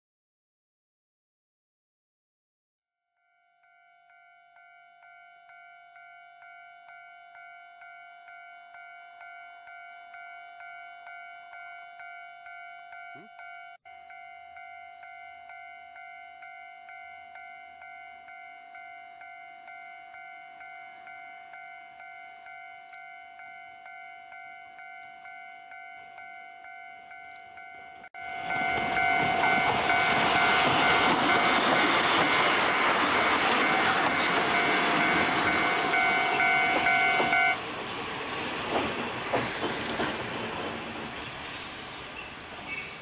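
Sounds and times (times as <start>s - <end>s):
level crossing warning bell: 3.2s - 37.6s
train passing on rails: 3.6s - 43.0s
train wheels clicking on rails: 28.4s - 42.8s.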